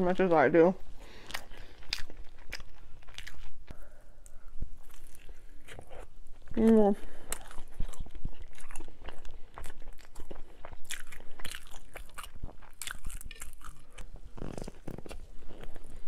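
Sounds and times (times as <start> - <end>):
person chewing crunchy food: 1.0 - 16.0.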